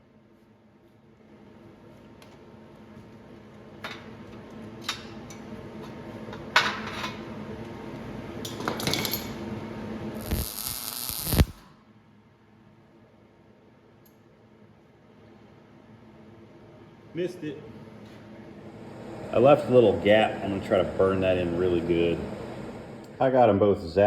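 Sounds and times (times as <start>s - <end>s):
welding arc crackle: 10.2s - 11.7s.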